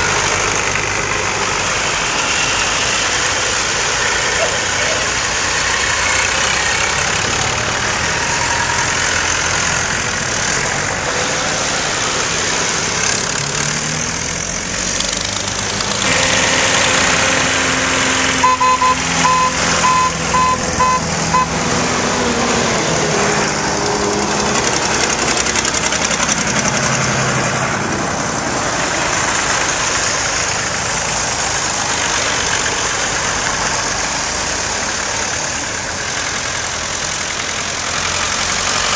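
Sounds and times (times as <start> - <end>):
tractor engines running: 0.0 - 38.9
vehicle horn beeping: 18.4 - 21.6.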